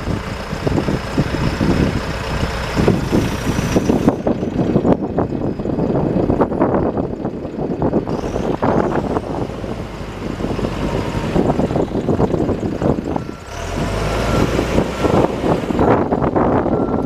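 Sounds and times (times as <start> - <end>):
diesel engine rattling: 0.0 - 17.0
reversing alarm beeps: 13.1 - 17.0.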